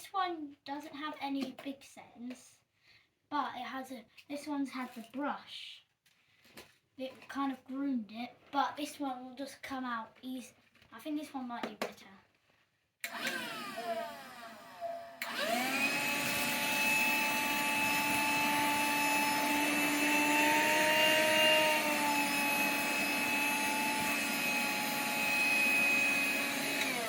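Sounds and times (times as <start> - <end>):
handheld vacuum whine: 13.0 - 27.0.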